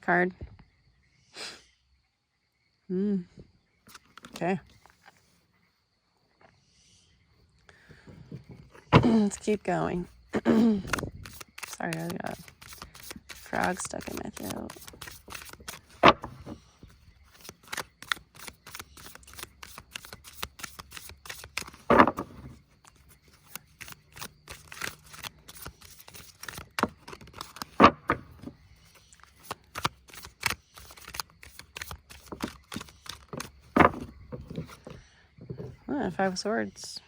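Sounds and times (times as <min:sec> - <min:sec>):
cards being shuffled by hand: 0:03.9 - 0:04.4, 0:08.0 - 0:36.4.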